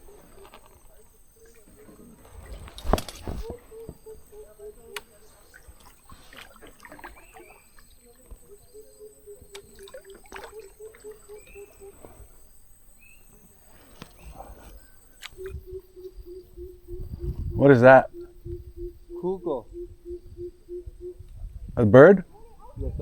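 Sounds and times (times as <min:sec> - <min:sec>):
bird deep low hoots: 0:00.0 - 0:05.7, 0:06.4 - 0:13.3, 0:14.0 - 0:22.8
kayak paddle splashes: 0:00.0 - 0:08.6, 0:09.5 - 0:12.3.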